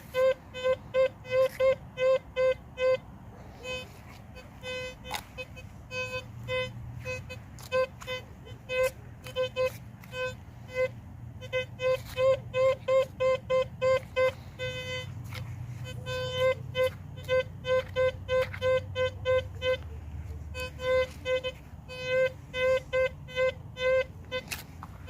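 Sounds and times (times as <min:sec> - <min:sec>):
metal detector short beeps: 0:03.6 - 0:24.6.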